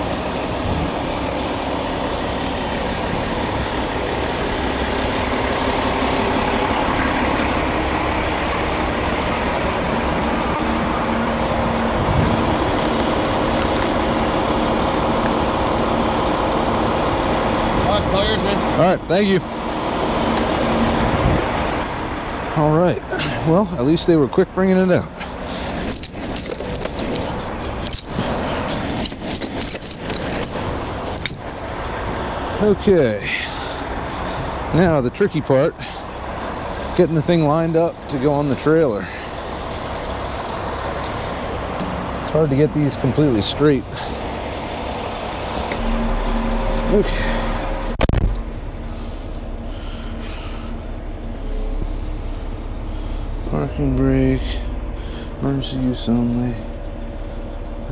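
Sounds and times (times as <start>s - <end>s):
diesel engine rumbling: 0.0s - 57.9s
small metal pieces jingling: 25.7s - 31.5s.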